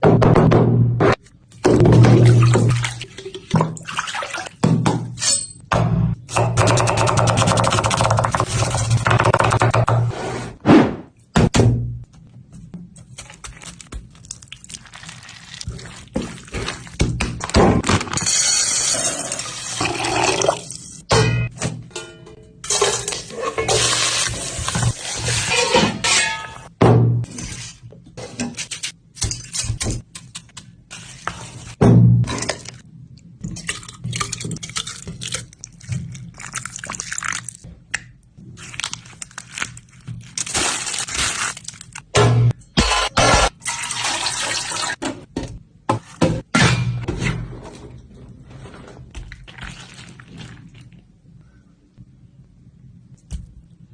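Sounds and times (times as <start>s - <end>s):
liquid pouring and splashing: 2.0s - 4.6s, 13.4s - 17.0s, 33.5s - 37.7s, 48.6s - 51.1s
cooking knocks clicks and scraping: 27.9s - 31.4s.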